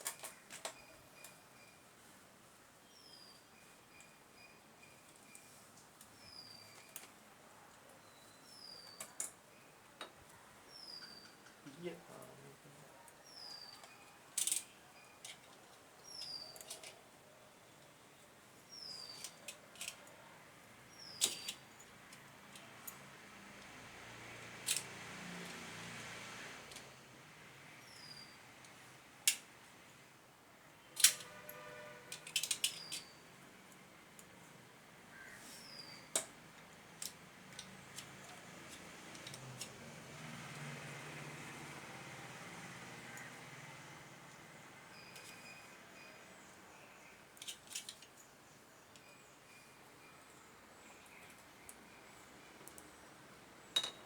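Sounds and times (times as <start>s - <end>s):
metal tools clicking and clinking: 31.0s - 33.1s, 47.4s - 48.1s, 53.8s - 54.0s.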